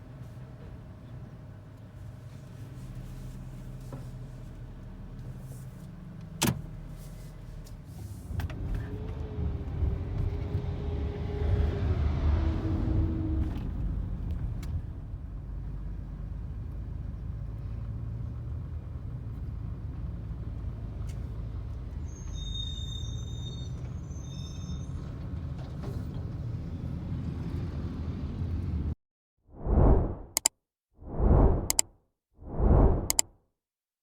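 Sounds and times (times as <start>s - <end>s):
short high-pitched squeal: 22.1s - 25.0s.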